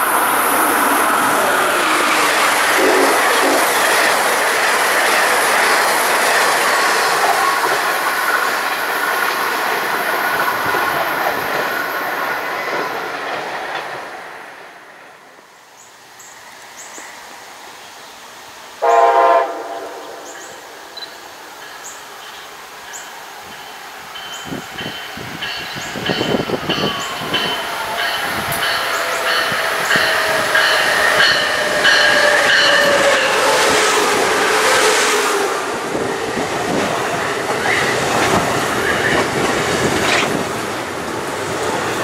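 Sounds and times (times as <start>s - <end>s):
train wheels rolling on rails: 0.0s - 18.7s, 20.2s - 42.0s
distant train horn blast: 2.7s - 4.0s, 18.8s - 20.6s.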